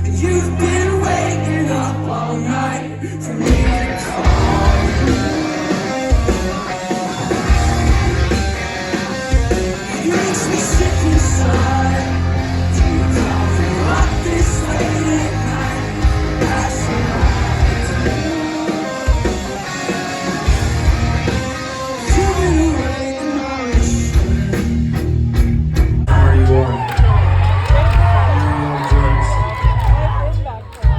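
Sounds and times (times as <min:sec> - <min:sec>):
drums: 0:00.0 - 0:02.2, 0:03.2 - 0:30.9
person singing: 0:00.0 - 0:07.1, 0:09.8 - 0:20.4, 0:21.8 - 0:24.7, 0:26.1 - 0:27.1
heavy bass: 0:00.0 - 0:23.1, 0:23.7 - 0:30.9
electric guitars: 0:00.0 - 0:30.2.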